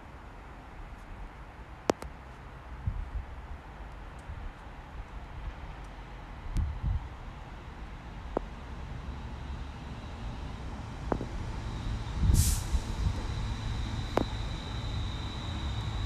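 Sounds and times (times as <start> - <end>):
train rumble: 5.2 - 16.0
air brake hiss: 11.7 - 16.0.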